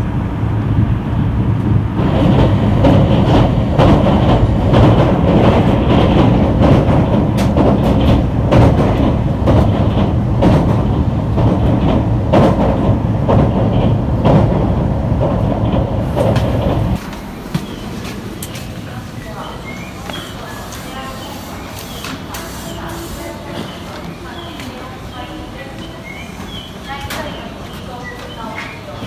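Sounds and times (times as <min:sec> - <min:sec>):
train rumbling on rails: 0:00.0 - 0:29.0
wheels clicking over rail joints: 0:00.8 - 0:24.9.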